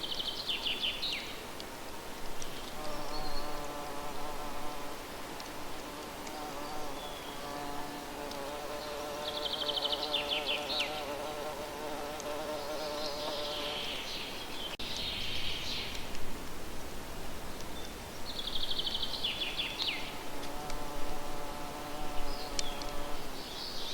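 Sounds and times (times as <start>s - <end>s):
flying insect buzzing: 2.6s - 14.0s, 20.1s - 23.4s.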